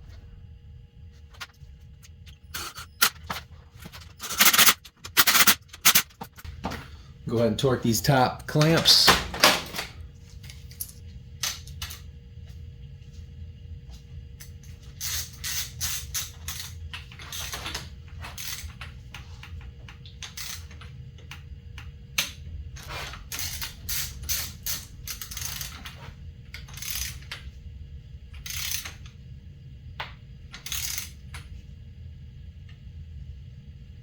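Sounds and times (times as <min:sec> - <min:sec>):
ratchet wrench clicking: 0:23.3 - 0:25.8, 0:26.6 - 0:27.3, 0:28.4 - 0:29.0, 0:30.6 - 0:31.1.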